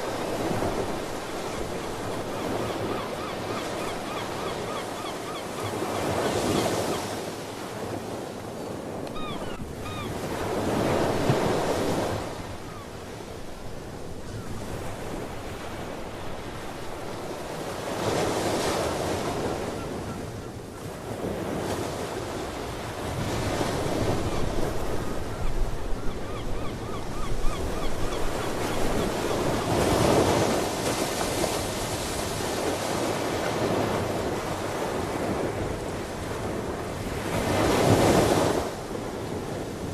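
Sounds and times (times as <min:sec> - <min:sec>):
ocean waves breaking: 0:00.0 - 0:39.9
sea bird calls: 0:01.0 - 0:07.2, 0:09.1 - 0:10.4, 0:24.3 - 0:30.2.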